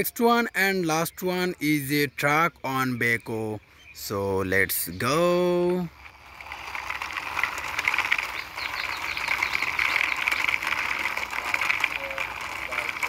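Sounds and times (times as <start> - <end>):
toy truck wheels rattling: 4.7 - 13.0.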